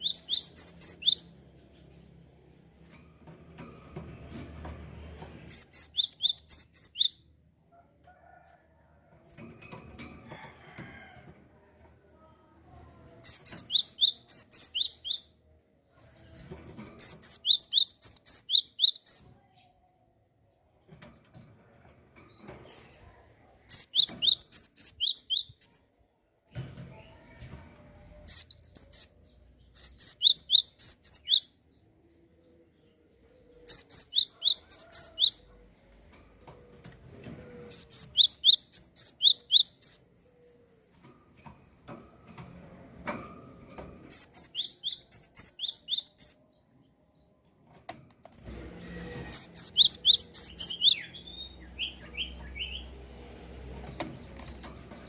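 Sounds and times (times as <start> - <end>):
songbird whistling: 0.0 - 1.3, 5.5 - 7.2, 17.0 - 19.2, 23.7 - 25.8, 29.8 - 31.5, 37.7 - 40.0, 44.1 - 46.4, 49.4 - 52.0.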